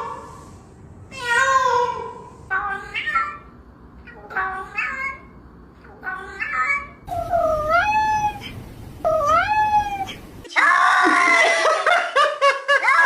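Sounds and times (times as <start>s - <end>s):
cats meowing: 5.9s - 11.5s.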